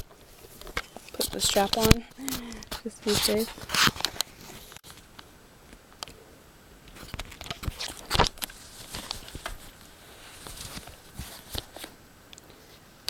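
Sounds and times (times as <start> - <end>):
rustling: 0.0 - 5.1, 6.9 - 12.9.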